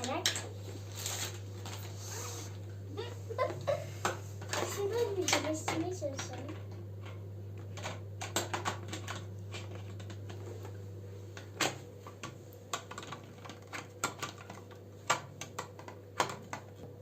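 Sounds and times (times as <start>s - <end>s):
plastic parts clicking and tapping: 4.0s - 10.4s, 11.4s - 16.9s.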